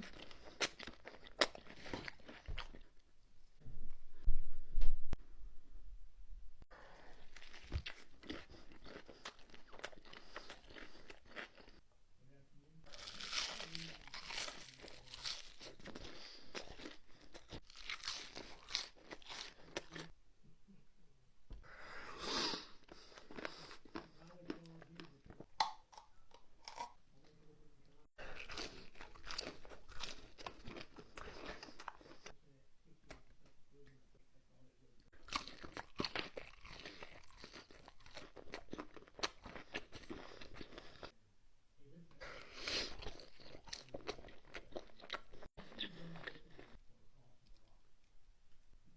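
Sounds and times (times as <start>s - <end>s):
crunching and chewing crisp food: 0.0s - 3.1s, 6.8s - 11.8s, 12.8s - 20.1s, 22.8s - 27.0s, 28.2s - 32.4s, 35.0s - 41.2s, 42.2s - 48.1s.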